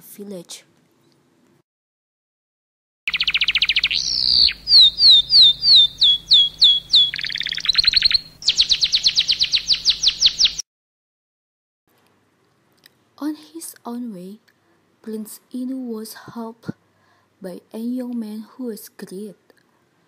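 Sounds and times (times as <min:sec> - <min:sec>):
songbird singing: 0:03.1 - 0:10.6.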